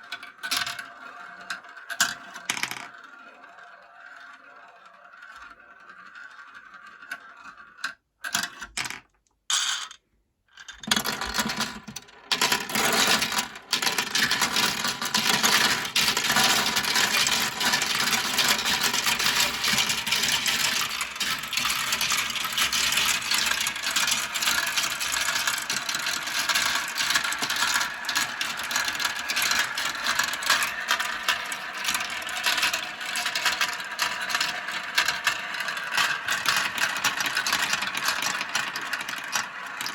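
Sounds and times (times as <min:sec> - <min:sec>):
marbles rattling down plastic run: 0:00.1 - 0:10.0, 0:10.6 - 0:39.9.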